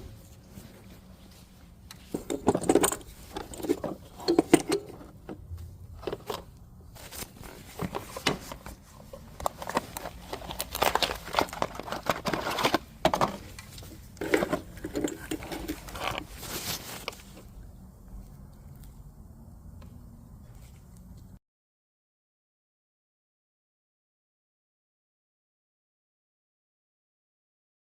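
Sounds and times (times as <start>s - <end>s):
metal tools clinking and clattering: 2.1s - 5.2s, 14.2s - 16.5s.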